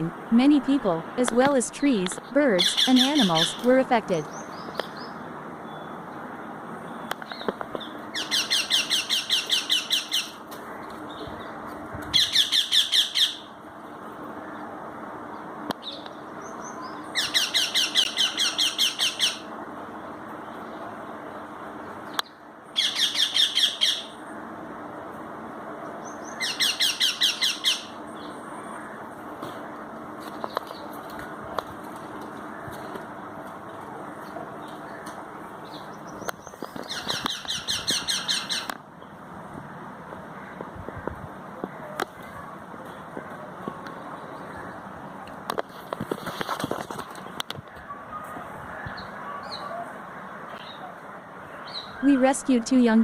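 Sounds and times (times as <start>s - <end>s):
steady background noise: 0.0s - 53.0s
young parrots squawking: 8.1s - 10.4s, 17.2s - 19.5s, 26.3s - 27.9s, 36.8s - 38.7s.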